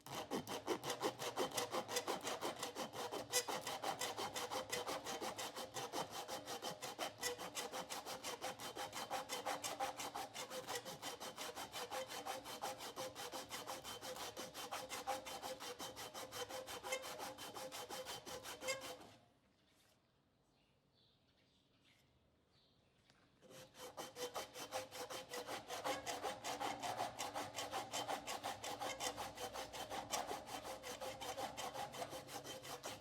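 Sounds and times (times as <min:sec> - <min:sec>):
abrasive tool rubbing steel blade: 0:10.4 - 0:19.2.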